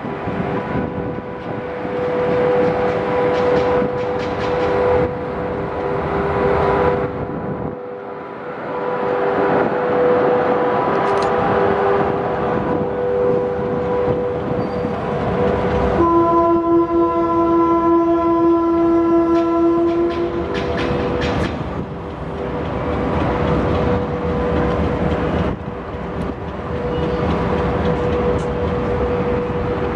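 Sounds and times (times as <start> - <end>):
train rumble: 0.0 - 29.9
train horn: 0.9 - 21.2.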